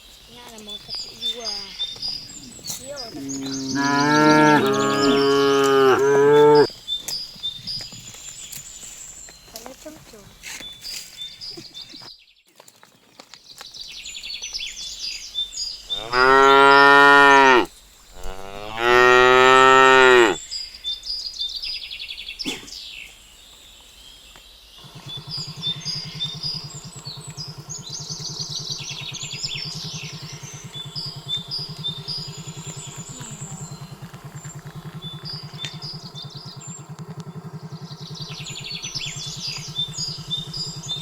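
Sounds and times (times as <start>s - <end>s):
cow mooing: 3.1s - 6.7s, 15.9s - 20.4s
high chirping: 24.8s - 41.0s
low engine hum: 24.8s - 41.0s.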